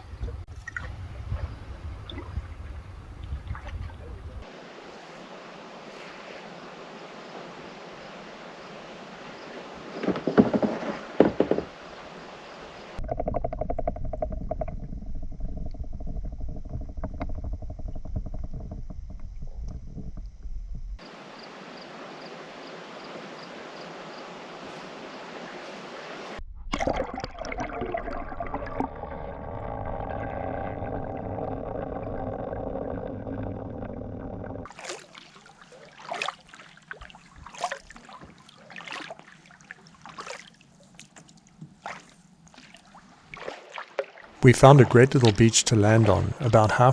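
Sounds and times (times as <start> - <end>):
wind rumbling on microphone: 0.0 - 4.5, 13.0 - 21.0
paddle strokes sloshing in water: 0.0 - 13.0, 21.0 - 26.4, 34.6 - 46.9
paddle splashes and drips: 0.0 - 13.1, 21.0 - 29.1, 34.6 - 46.9.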